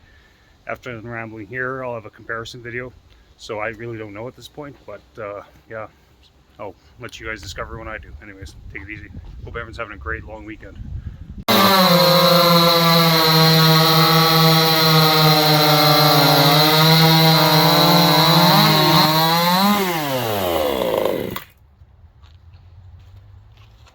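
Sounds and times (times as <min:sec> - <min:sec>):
chainsaw running: 0:11.5 - 0:21.5.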